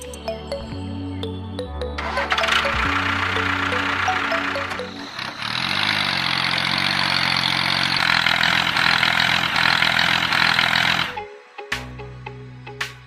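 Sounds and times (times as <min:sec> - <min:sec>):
tractor engine running: 0:01.8 - 0:11.3.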